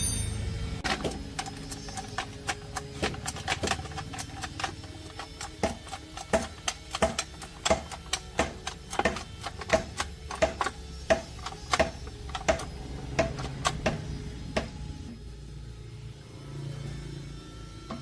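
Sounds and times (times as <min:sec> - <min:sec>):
sharp metal taps and clicks: 0:00.8 - 0:14.8.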